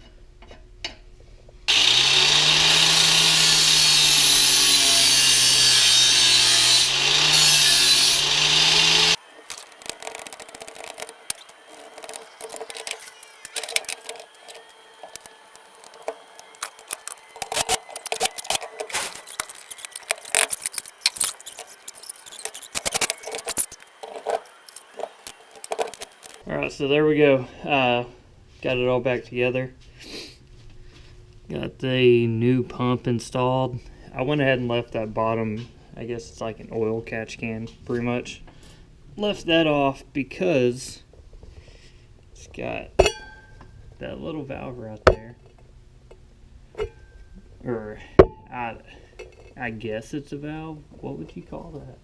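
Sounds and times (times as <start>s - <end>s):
handheld power tool running: 1.7s - 26.4s
clicks and knocks of tools: 9.4s - 26.4s.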